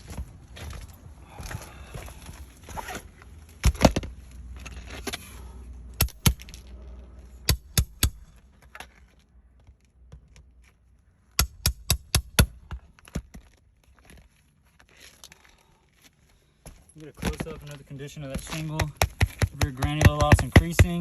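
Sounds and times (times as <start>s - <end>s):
sharp metal knocks: 6.0s - 6.6s, 7.4s - 8.3s, 11.4s - 12.8s, 18.4s - 21.0s.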